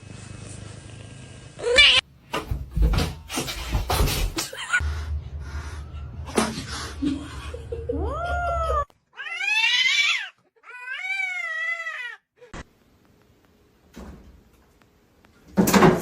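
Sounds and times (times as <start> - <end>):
cat yowling: 8.1 - 12.2.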